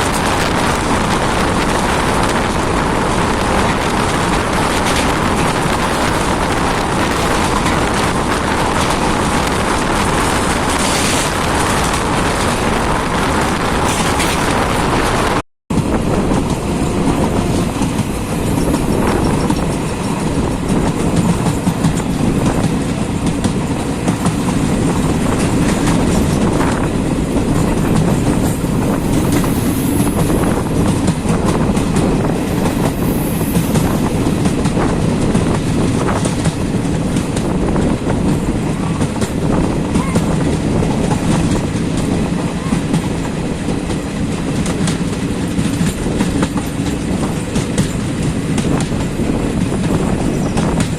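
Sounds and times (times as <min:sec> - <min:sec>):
train rumbling: 0:00.0 - 0:50.9
wheels clacking over rails: 0:00.0 - 0:50.9.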